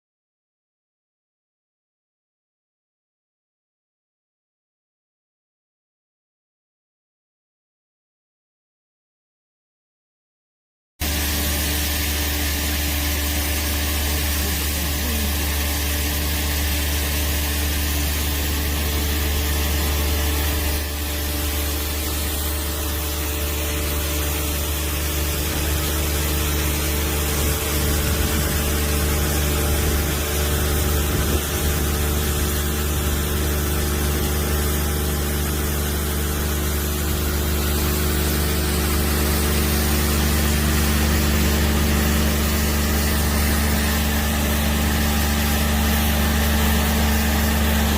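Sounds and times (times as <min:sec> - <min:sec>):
loader engine running: 0:11.0 - 0:47.9.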